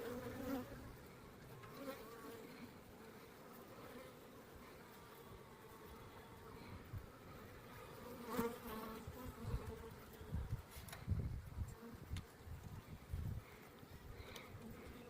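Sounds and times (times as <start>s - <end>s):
bees buzzing: 0.0s - 10.7s.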